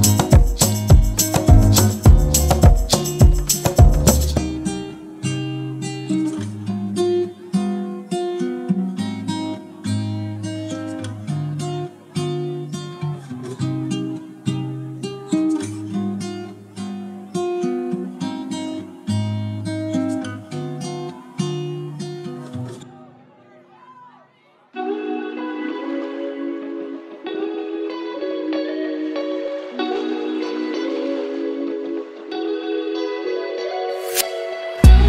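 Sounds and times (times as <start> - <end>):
bass line: 0.0 - 4.6
loud percussion: 0.0 - 4.7, 34.1 - 35.0
acoustic guitar picking melody: 0.0 - 23.2, 24.8 - 35.0.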